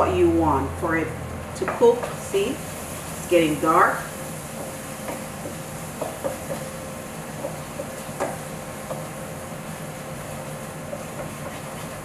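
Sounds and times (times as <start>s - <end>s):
food sizzling in a pan: 1.6s - 12.0s
wooden spoon knocking a pan: 4.6s - 6.7s, 7.4s - 9.1s.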